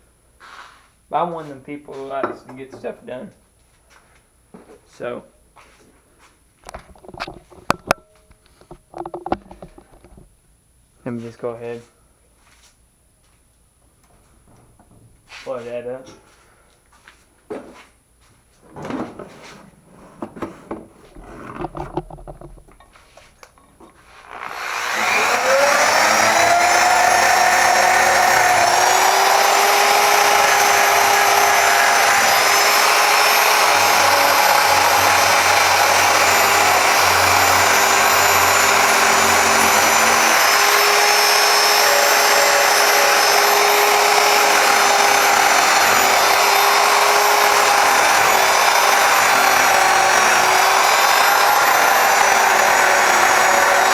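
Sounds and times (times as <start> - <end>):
power tool grinding metal: 24.1 - 53.9.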